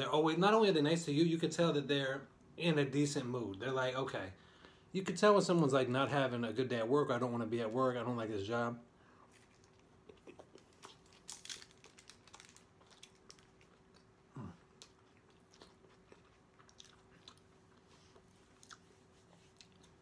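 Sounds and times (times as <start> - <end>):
faint chewing: 9.1 - 20.0.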